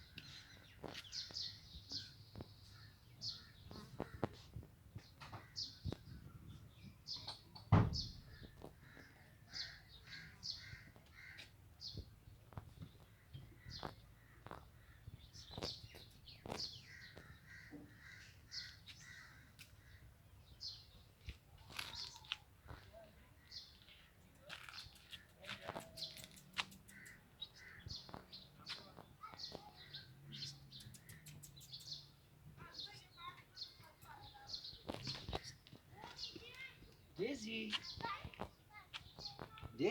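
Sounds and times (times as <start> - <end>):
birds calling: 0.0 - 39.9
loud thump: 7.7 - 8.3.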